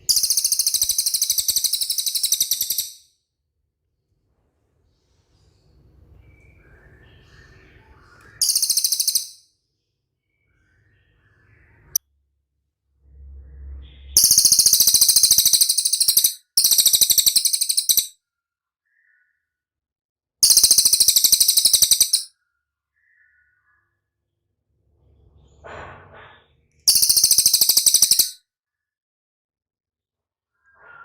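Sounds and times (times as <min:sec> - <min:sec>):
bird high-pitched trills: 0:00.0 - 0:03.1, 0:08.3 - 0:09.4, 0:14.2 - 0:18.1, 0:20.4 - 0:22.3, 0:26.9 - 0:28.4.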